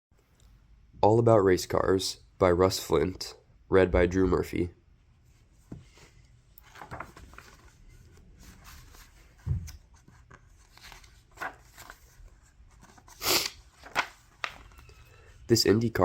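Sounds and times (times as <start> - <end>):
paper pages rustling: 5.6 - 15.4.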